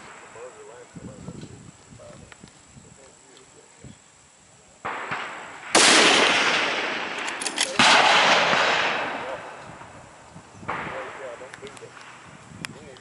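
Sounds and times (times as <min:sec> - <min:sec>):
rifle shots echoing: 0:04.8 - 0:10.0, 0:10.6 - 0:12.3.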